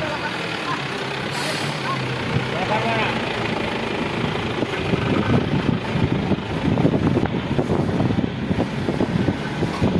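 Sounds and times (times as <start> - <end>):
heavy vehicle engine rumbling: 0.0 - 9.9
wind buffeting microphone: 3.5 - 9.9.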